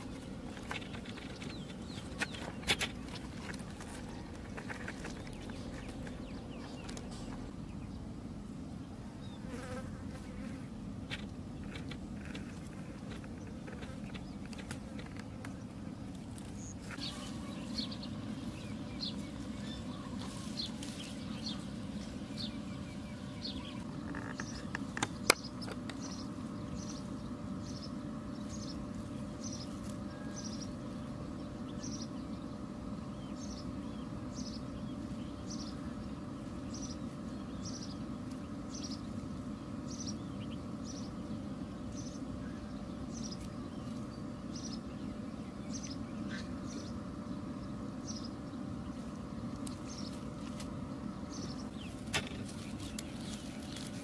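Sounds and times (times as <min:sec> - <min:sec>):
small bird chirping: 0:00.0 - 0:08.0, 0:16.4 - 0:32.5, 0:33.2 - 0:50.6
low steady hum: 0:00.0 - 0:54.0.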